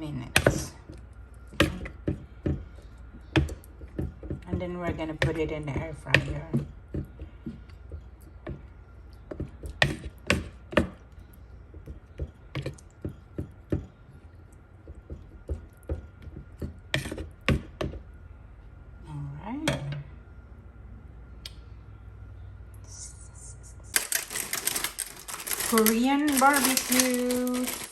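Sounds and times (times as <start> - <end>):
kitchen utensils clicking and knocking: 24.0 - 27.9.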